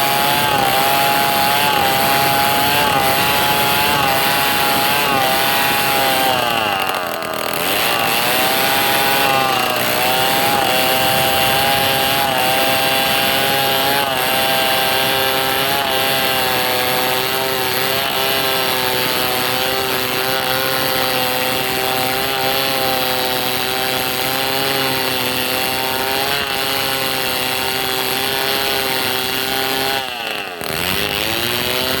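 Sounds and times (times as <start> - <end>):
chainsaw cutting wood: 0.0 - 32.0.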